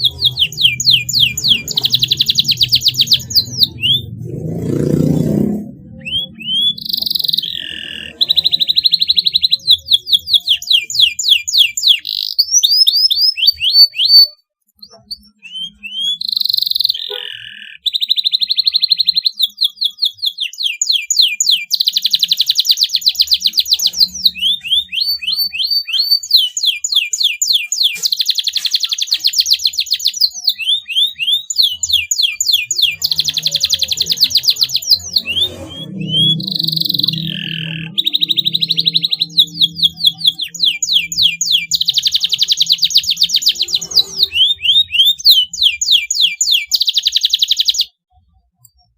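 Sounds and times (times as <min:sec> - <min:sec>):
canary singing trills: 0:00.0 - 0:48.9.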